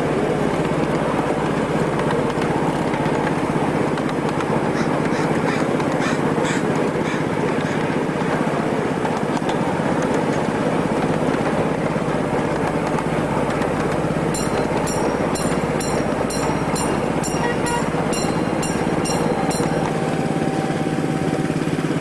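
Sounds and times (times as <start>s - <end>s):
miniature train rumbling: 0.0s - 22.0s
high-pitched chirping: 14.4s - 20.7s.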